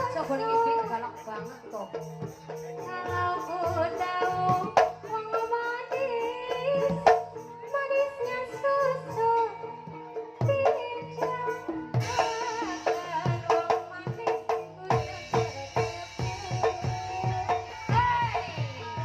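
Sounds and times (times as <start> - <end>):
instrumental accompaniment: 0.0 - 19.0
woman singing wavering melody: 0.0 - 19.0
sharp drum strokes: 12.0 - 19.0.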